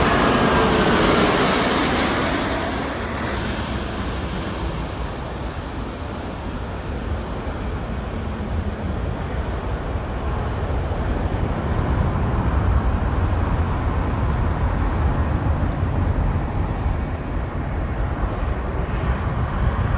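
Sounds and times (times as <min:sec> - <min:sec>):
jet engine deep rumble: 0:00.0 - 0:19.9.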